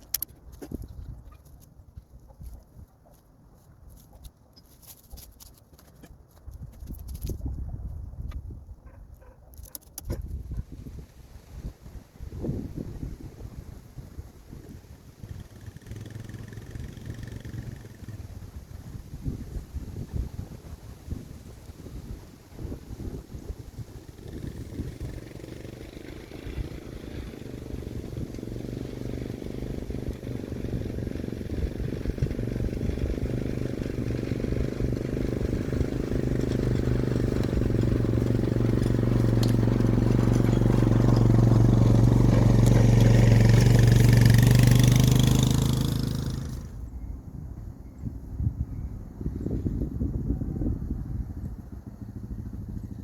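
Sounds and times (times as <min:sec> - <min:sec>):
small engine running: 0:15.1 - 0:18.4, 0:23.8 - 0:46.8.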